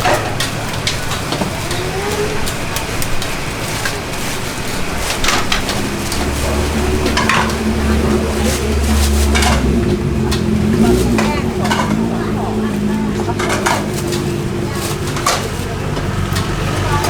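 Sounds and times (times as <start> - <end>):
dishes and utensils clattering: 0.0 - 17.0
low engine hum: 0.0 - 17.0
background din: 4.9 - 17.0.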